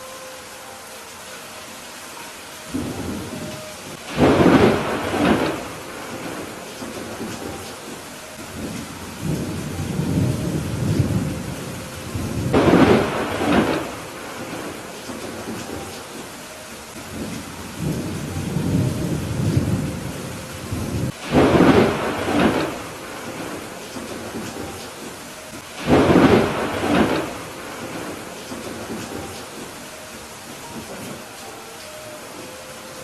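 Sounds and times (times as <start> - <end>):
steady rain: 0.0 - 33.0
thunder rolling: 2.7 - 16.4, 17.1 - 29.8
sharp thunder peals: 4.0 - 8.0, 8.6 - 15.8, 17.1 - 25.2, 25.8 - 29.7.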